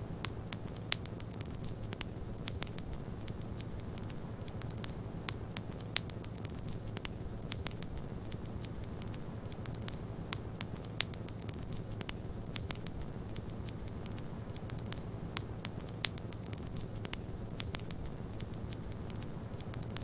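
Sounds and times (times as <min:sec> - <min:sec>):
wood fire crackling and popping: 0:00.1 - 0:20.0.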